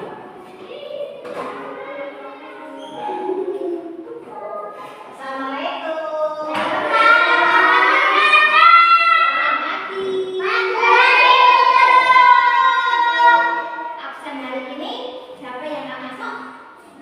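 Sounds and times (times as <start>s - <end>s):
children singing: 1.2s - 5.0s, 6.2s - 14.0s.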